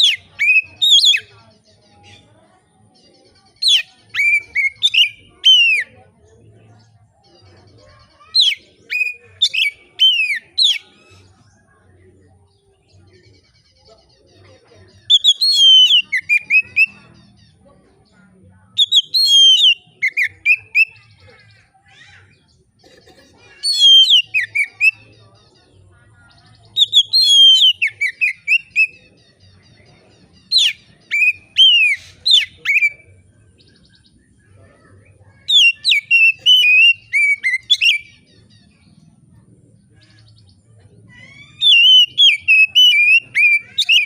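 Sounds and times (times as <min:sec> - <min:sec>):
magpie-robin whistled song: 0:00.0 - 0:01.3, 0:03.5 - 0:06.0, 0:08.2 - 0:11.3, 0:15.0 - 0:17.6, 0:18.7 - 0:21.1, 0:23.6 - 0:25.2, 0:26.3 - 0:34.2, 0:35.1 - 0:39.0, 0:40.0 - 0:44.0.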